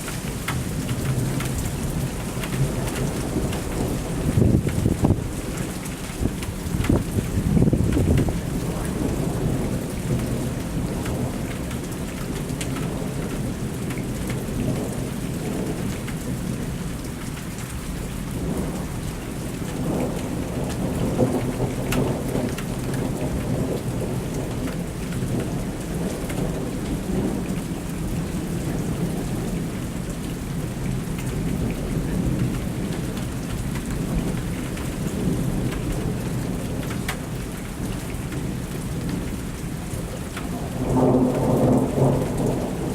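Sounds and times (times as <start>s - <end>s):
thunder rumbling: 0.0s - 11.4s, 30.8s - 42.9s
rain falling: 0.0s - 42.9s.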